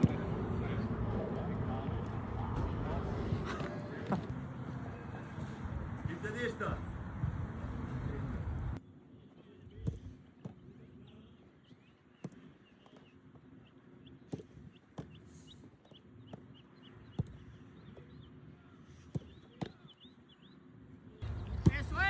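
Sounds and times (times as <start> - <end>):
football kicked: 0.0 - 0.4, 17.2 - 17.5, 21.2 - 22.0
faint bird chirps: 9.4 - 21.7.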